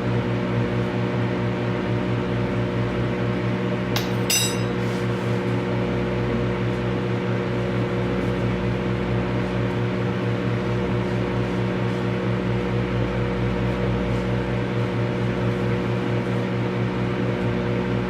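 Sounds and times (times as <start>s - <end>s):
microwave oven humming: 0.0s - 18.0s
sharp ringing clinks: 4.0s - 4.8s.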